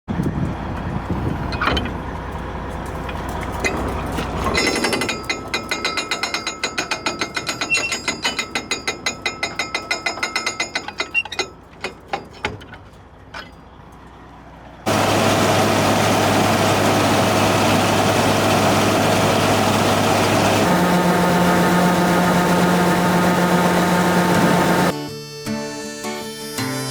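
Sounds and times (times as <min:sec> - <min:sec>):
steady machine drone: 0:14.9 - 0:24.9.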